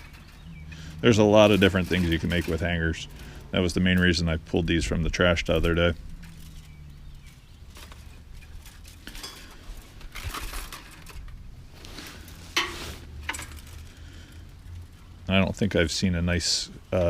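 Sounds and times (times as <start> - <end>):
hangers clinking and rattling: 5.2 - 14.0.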